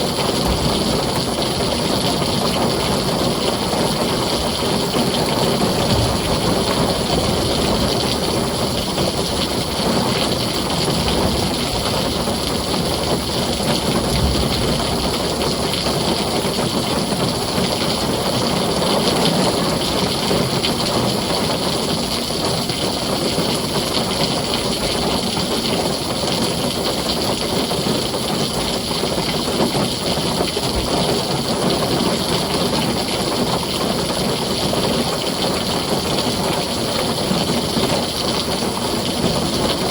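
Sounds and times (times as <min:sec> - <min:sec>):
heavy rain on a tin roof: 0:00.0 - 0:39.9
low rumble: 0:00.2 - 0:02.5, 0:04.9 - 0:16.8.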